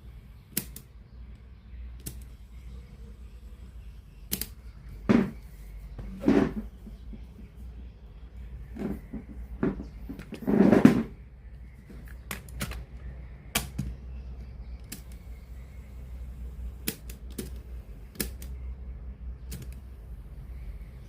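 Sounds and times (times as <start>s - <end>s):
steady low hum: 0.0s - 21.0s
clatter of objects: 8.8s - 11.2s.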